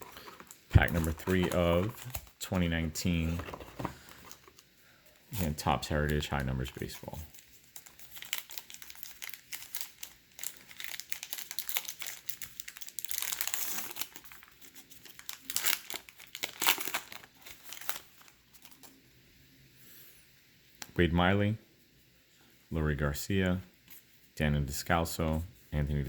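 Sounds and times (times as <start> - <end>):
wrapper tearing and crinkling: 0.0 - 2.4, 6.9 - 18.9.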